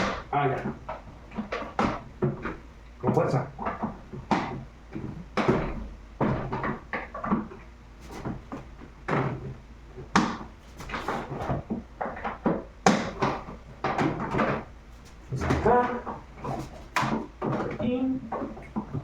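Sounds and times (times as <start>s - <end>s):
hard plastic parts knocking: 0.0s - 19.0s.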